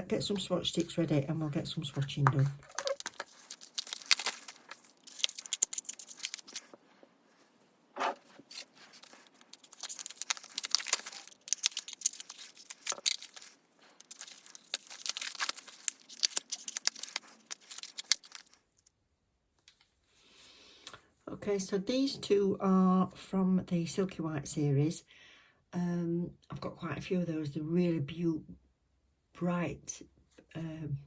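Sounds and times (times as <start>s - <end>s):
plastic packaging crinkling: 0.2s - 18.9s.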